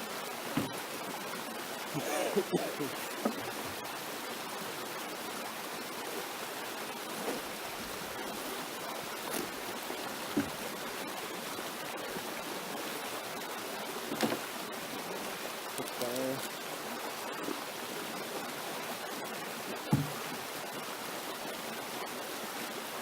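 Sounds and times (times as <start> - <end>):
faint knocks: 0.5 - 0.8, 10.3 - 10.6, 19.9 - 20.2.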